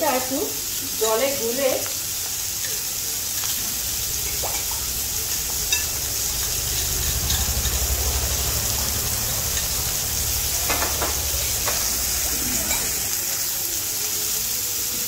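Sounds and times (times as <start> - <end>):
vegetables sizzling in oil: 0.0 - 15.0
low rumble: 3.8 - 13.2.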